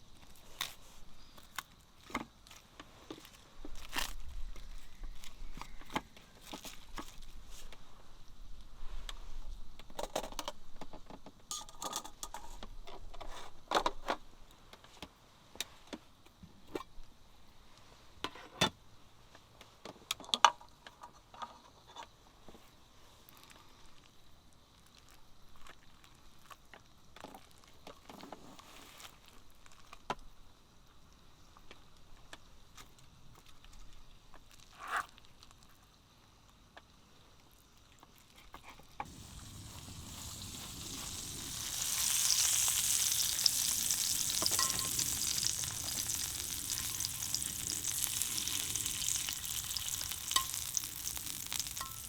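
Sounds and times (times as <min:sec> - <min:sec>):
small objects clinking and knocking: 0:39.0 - 0:52.0.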